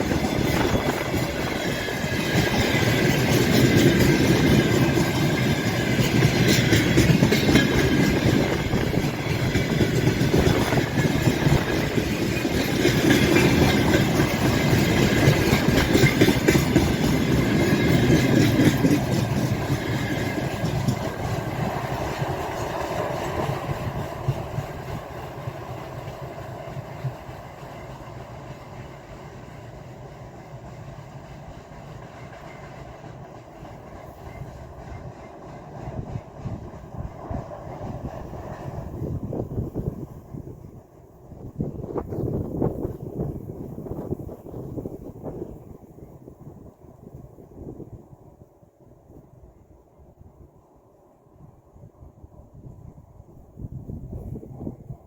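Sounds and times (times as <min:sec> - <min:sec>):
train wheels clacking over rail joints: 0:00.0 - 0:29.9.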